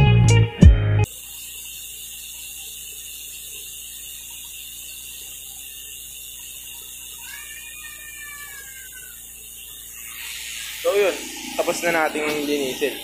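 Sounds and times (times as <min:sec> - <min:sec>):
faint outdoor hiss: 0:01.1 - 0:13.0
distant animal call: 0:07.0 - 0:13.0.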